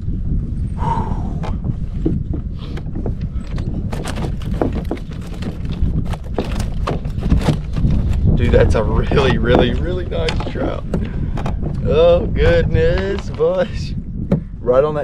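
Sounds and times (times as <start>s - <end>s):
wind rumble on microphone: 0.0s - 15.0s
fish thrashing knocks and splashes: 2.1s - 8.4s.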